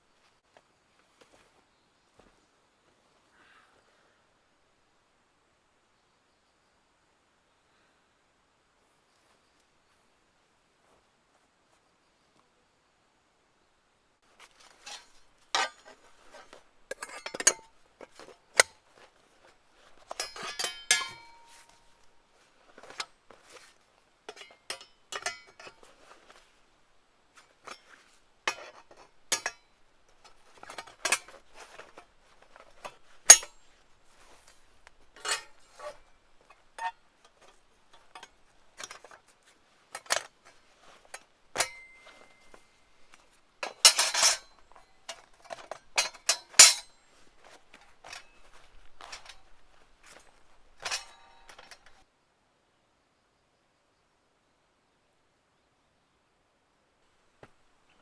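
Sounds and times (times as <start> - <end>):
cookware and utensils clinking: 14.6 - 18.8, 19.8 - 23.7, 24.3 - 26.4, 27.6 - 39.2, 39.9 - 52.0.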